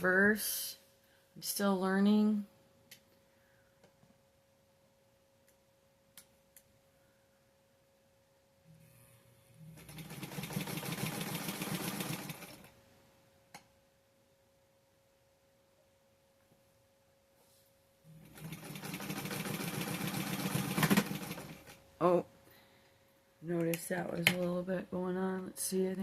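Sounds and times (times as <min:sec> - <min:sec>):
sewing machine stitching: 0:09.6 - 0:12.7, 0:18.2 - 0:21.8.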